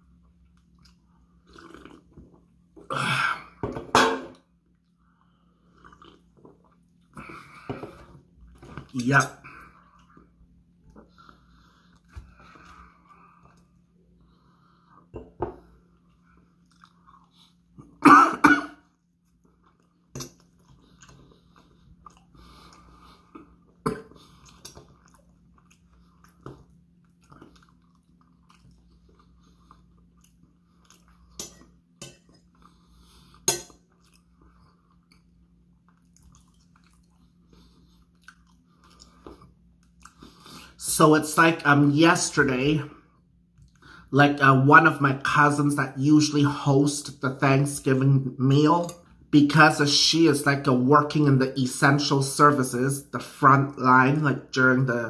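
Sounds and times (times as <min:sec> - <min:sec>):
person chewing food: 0:00.0 - 0:03.7, 0:04.5 - 0:18.0, 0:18.8 - 0:40.8.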